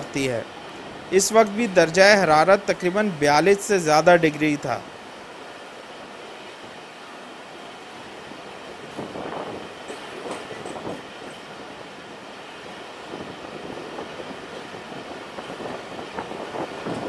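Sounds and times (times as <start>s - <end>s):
train wheels rumbling on track: 0.0s - 17.0s
clatter over rail joints: 9.7s - 11.5s.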